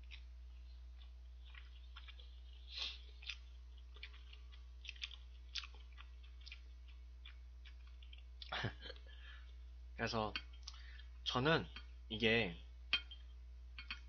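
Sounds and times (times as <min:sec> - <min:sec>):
chewing with lip smacks: 0:00.0 - 0:09.6
steady low hum: 0:00.0 - 0:14.0.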